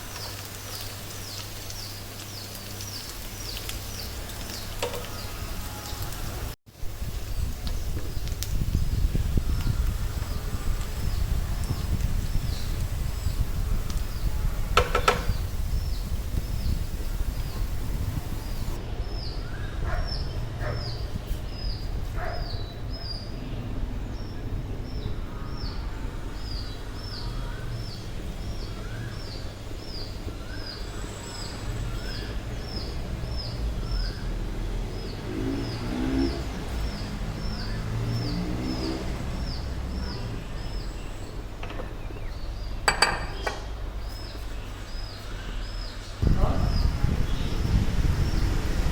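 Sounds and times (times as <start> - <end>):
steady low hum: 6.8 - 18.8.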